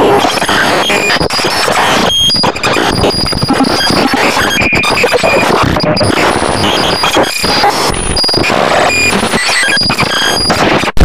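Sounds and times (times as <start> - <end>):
harsh alarm noise: 0.0 - 11.0.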